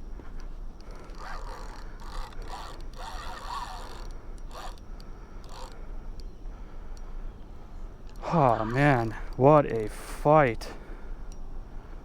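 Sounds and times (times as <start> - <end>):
fishing reel winding: 0.8 - 5.8.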